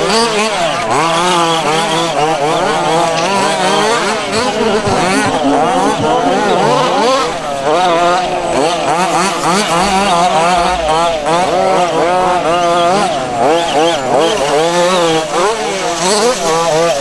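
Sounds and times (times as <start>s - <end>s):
small two-stroke engines racing: 0.0s - 17.0s.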